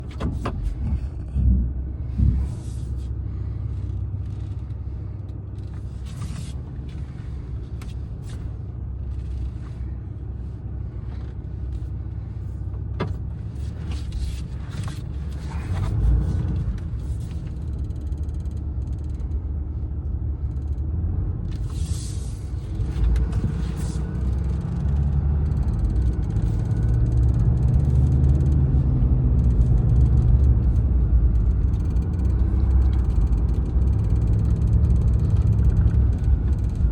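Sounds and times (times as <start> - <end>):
car rumbling on road: 0.0 - 36.9.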